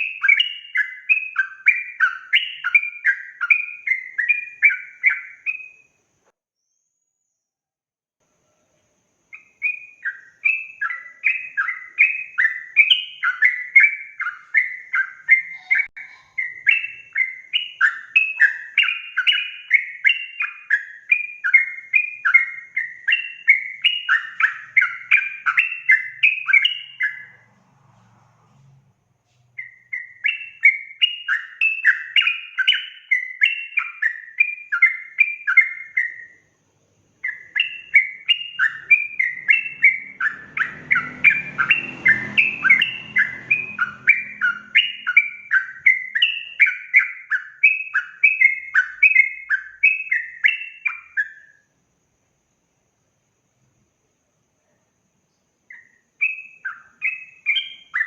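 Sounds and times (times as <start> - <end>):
bulbul chattering song: 0.0 - 6.0, 8.6 - 27.5, 29.5 - 51.6, 55.3 - 58.0.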